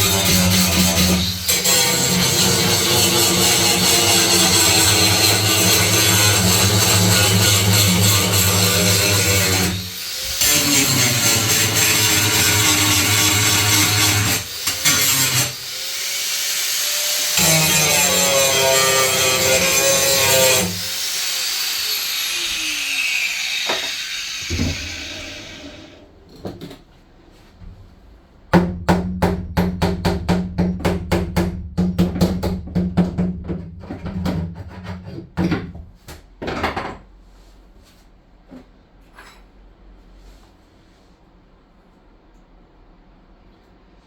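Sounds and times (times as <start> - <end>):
power tool winding down: 8.8 - 26.0.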